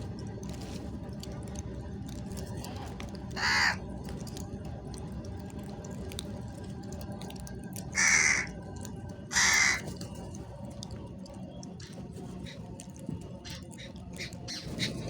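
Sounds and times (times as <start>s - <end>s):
crow cawing: 3.4s - 3.9s, 7.9s - 8.6s, 9.3s - 9.9s.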